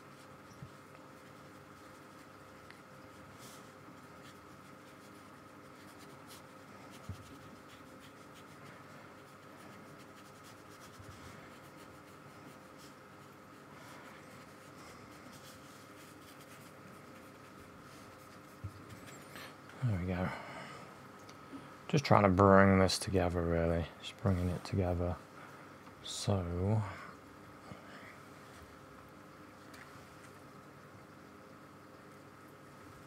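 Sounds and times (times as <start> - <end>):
paintbrush strokes on paper: 0.0 - 19.6
faint steady hum: 0.0 - 33.0.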